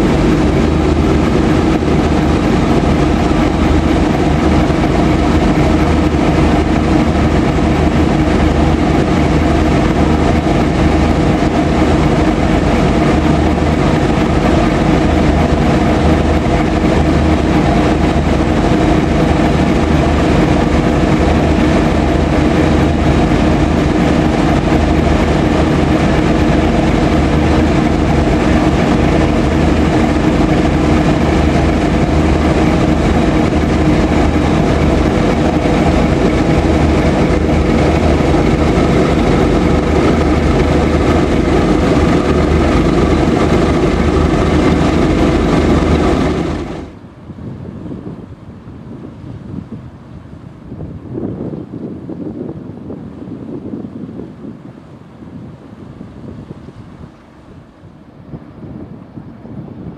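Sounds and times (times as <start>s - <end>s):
freight train wheels rumbling on rails: 0.0s - 47.3s.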